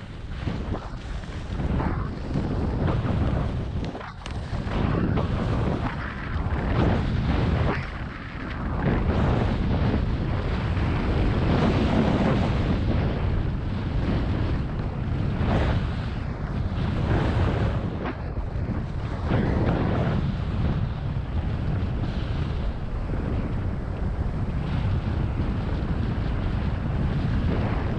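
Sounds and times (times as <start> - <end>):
skis scraping across snow: 0.0 - 27.9
wind buffeting microphone: 0.0 - 27.9.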